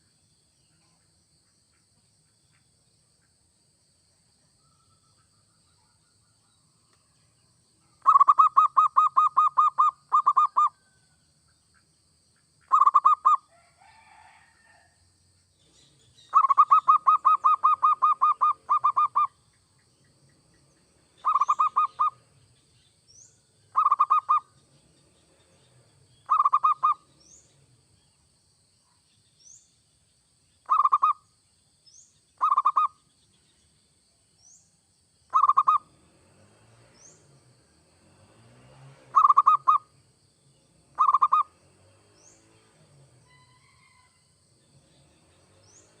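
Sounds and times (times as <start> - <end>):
dove cooing: 8.0 - 10.7, 12.7 - 13.4, 16.3 - 19.3, 21.2 - 22.2, 23.8 - 24.4, 26.3 - 27.0, 30.7 - 31.2, 35.3 - 35.8, 39.1 - 39.8, 41.0 - 41.5
faint high chirp: 21.2 - 22.2.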